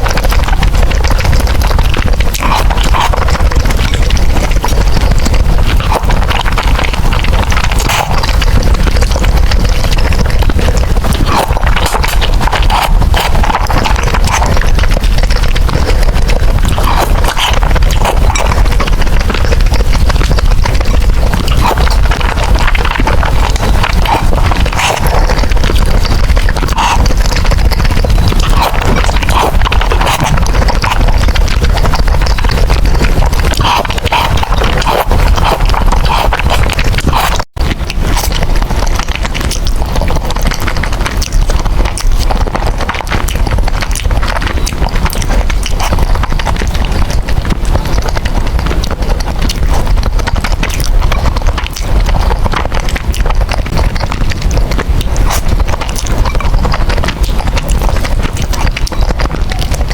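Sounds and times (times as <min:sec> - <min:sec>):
person eating noodles: 0:00.0 - 0:59.9.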